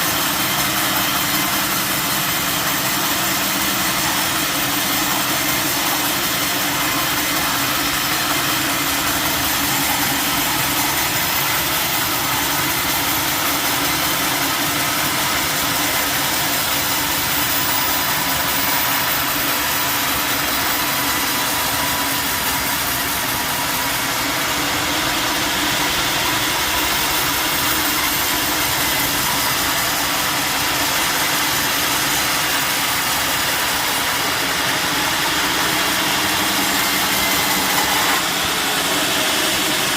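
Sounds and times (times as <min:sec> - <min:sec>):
sawmill engine drone: 0:00.0 - 0:39.9.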